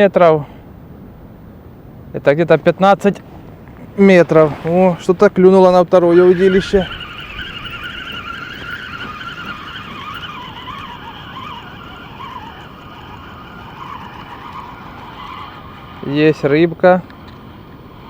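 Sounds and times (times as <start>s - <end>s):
fishing reel whirring: 4.0s - 18.0s.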